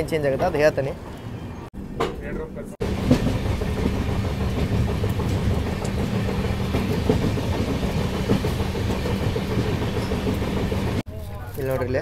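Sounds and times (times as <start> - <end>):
train wheels rumbling on rails: 1.9 - 11.0
clacks of wheels: 2.9 - 11.0.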